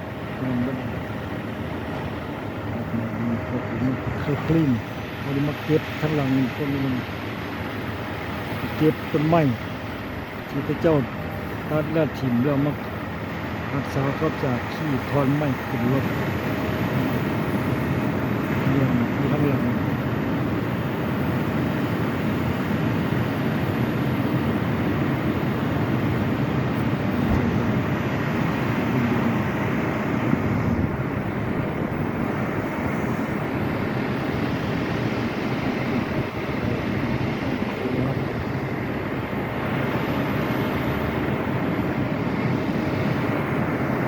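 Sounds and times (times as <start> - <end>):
moving vehicle rumble: 0.0 - 44.0.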